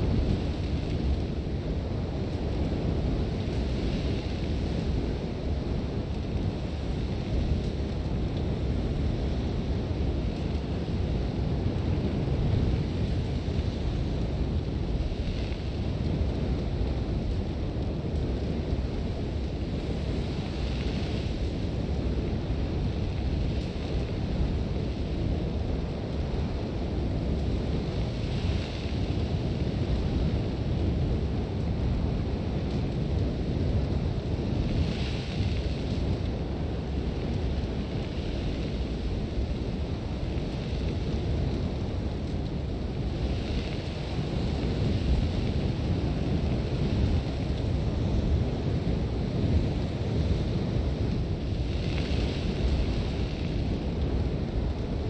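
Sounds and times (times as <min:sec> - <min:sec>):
strong wind rumbling: 0:00.0 - 0:55.0
hiss of blown sand: 0:51.5 - 0:53.7.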